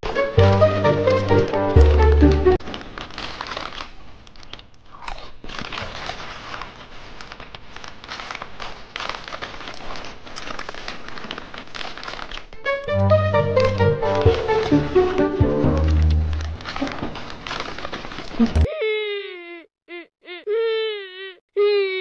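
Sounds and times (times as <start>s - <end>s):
background music: 0.0s - 2.6s, 12.6s - 17.0s
plastic bag crinkling: 0.0s - 12.7s, 14.1s - 18.7s
crunchy munching of snack: 2.9s - 12.5s.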